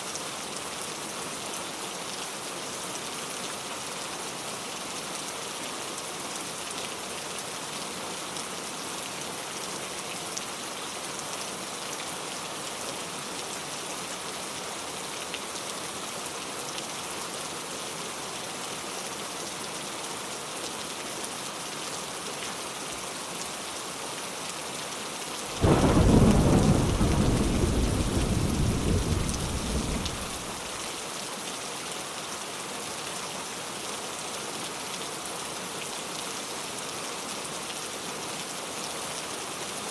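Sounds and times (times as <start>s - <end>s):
steady rain falling: 0.0s - 39.9s
thunder clap rumbling: 25.6s - 30.7s.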